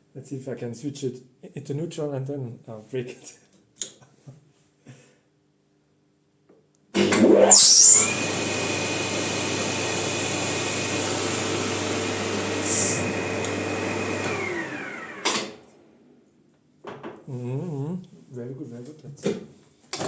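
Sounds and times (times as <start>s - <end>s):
metal lathe gear whine: 7.2s - 15.4s.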